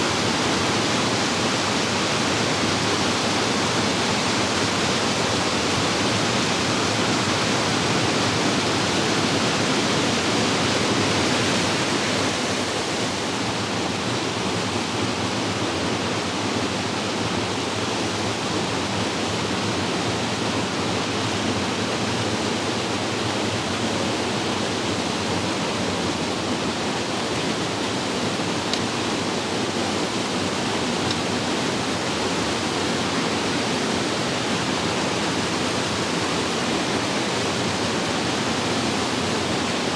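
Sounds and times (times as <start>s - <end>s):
waterfall rushing: 26.4s - 39.9s.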